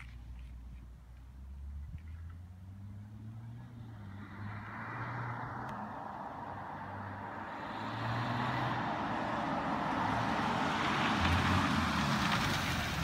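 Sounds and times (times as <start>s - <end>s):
car engine approaching with exhaust roar: 0.0s - 13.0s.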